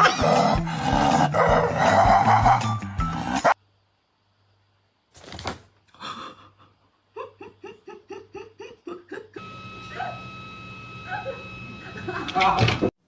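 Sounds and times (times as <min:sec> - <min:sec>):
breathy sounds: 0:00.4 - 0:03.5, 0:05.9 - 0:06.9
high-pitched laughter: 0:07.2 - 0:09.4.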